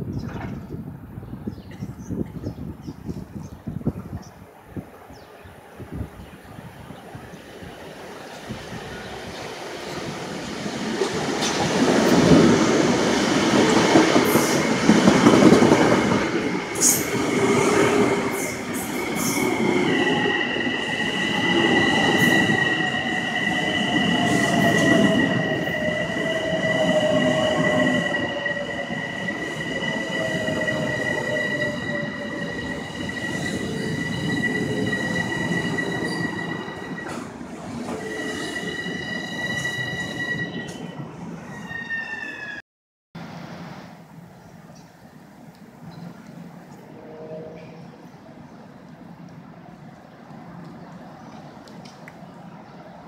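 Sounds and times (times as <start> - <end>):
train wheels rumbling: 7.9 - 41.1
high-pitched squeal: 18.1 - 42.6.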